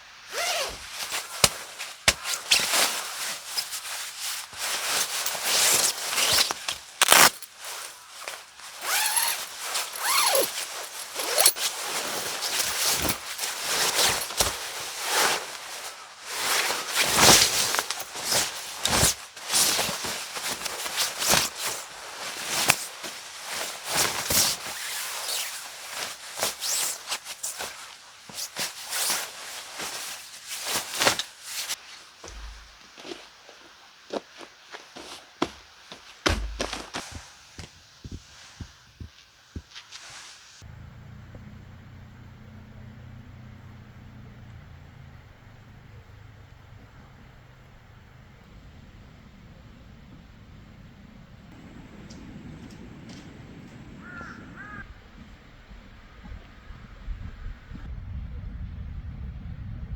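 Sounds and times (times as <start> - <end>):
rustling and scraping gear: 0.2 - 40.7
zipper rasp: 0.3 - 0.8, 8.8 - 15.5.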